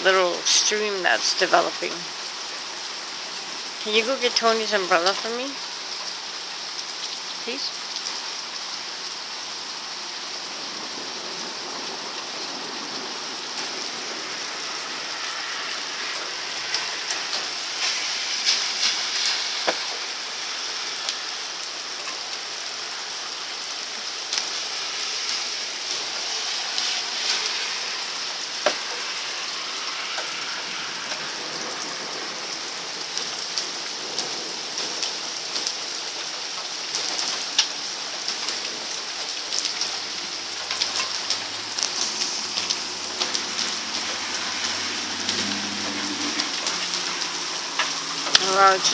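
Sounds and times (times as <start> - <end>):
heavy rain pouring: 0.0 - 48.9
raindrop taps: 18.4 - 20.0.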